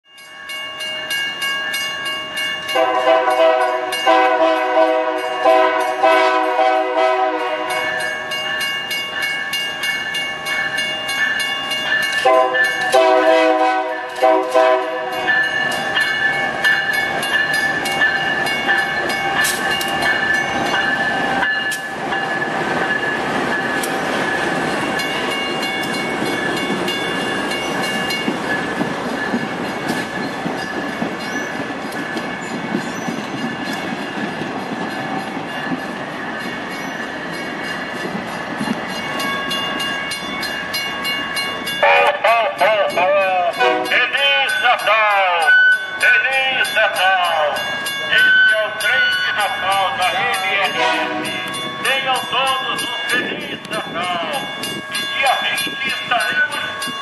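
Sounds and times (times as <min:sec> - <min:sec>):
train rumbling past: 0:01.0 - 0:57.0
locomotive air horn blasts: 0:02.8 - 0:07.9, 0:12.2 - 0:15.2, 0:41.8 - 0:42.3, 0:43.6 - 0:44.1, 0:50.7 - 0:51.4
wheels clicking over rail joints: 0:15.3 - 0:41.8.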